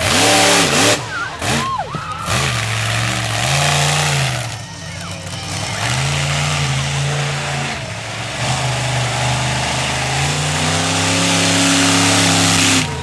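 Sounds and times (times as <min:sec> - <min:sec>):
truck engine revving hard: 0:00.0 - 0:13.0
loud rushing exhaust: 0:05.7 - 0:13.0.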